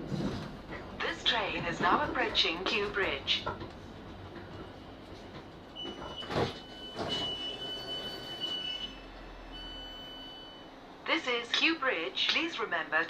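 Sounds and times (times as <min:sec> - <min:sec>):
train cabin noise: 0:00.0 - 0:09.3.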